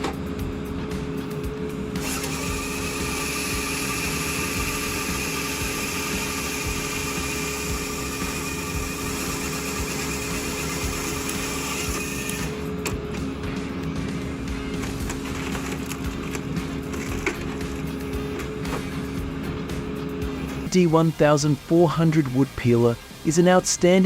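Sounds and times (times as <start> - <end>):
constant low hum: 0.0 - 20.7
woodworking machine whirring hiss: 1.2 - 12.8.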